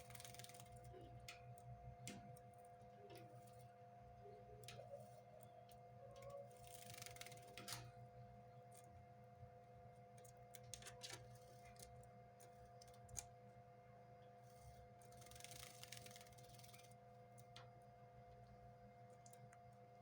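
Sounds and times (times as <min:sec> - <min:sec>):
wings fluttering: 0:00.0 - 0:01.1, 0:06.2 - 0:07.8, 0:14.5 - 0:17.0
faint hum: 0:00.0 - 0:20.0
small clicks: 0:18.4 - 0:19.8.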